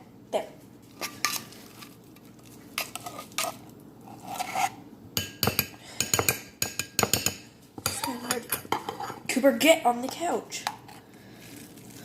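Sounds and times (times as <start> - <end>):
metal utensil scraping a bowl: 2.8 - 4.8, 7.0 - 9.3.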